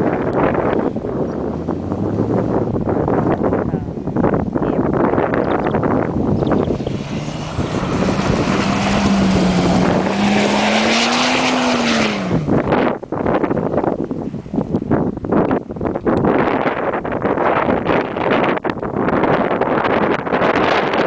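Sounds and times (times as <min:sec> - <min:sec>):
car engine under throttle: 0:00.0 - 0:21.0
wind noise on microphone: 0:00.0 - 0:21.0.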